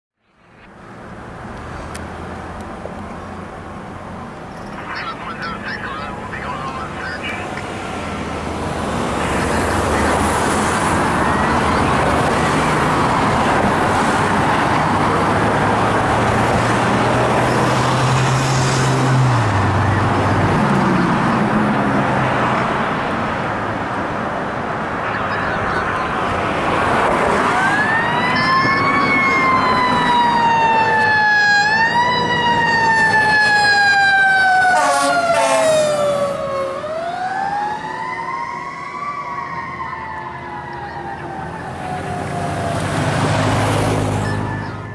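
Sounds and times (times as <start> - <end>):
fire engine and road noise: 0.2 - 44.9
siren wailing: 8.8 - 13.5, 27.2 - 44.9.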